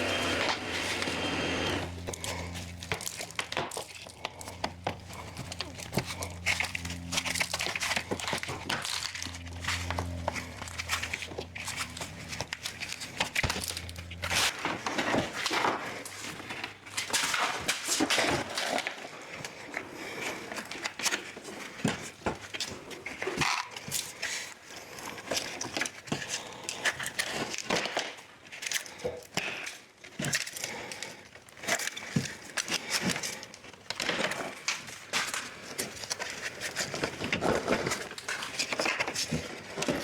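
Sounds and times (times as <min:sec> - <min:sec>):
low steady hum: 0:00.0 - 0:14.5.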